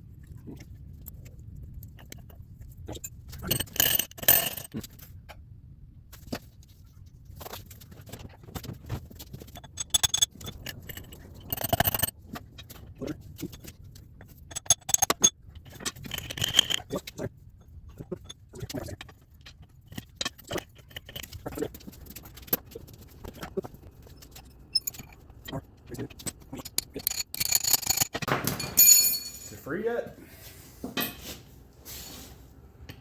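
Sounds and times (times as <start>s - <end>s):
metal tools clinking and scraping: 2.9s - 4.8s, 8.6s - 17.2s, 18.1s - 29.8s.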